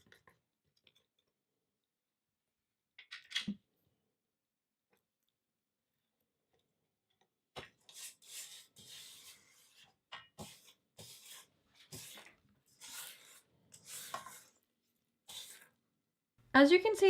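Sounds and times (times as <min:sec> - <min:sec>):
spatula scraping mixing bowl: 0:07.8 - 0:15.8.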